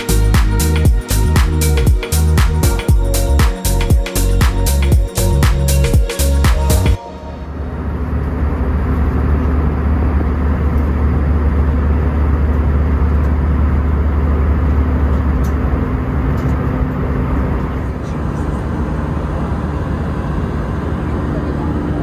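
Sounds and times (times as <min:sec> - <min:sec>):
aircraft engines droning: 0:00.0 - 0:11.6, 0:17.2 - 0:22.0.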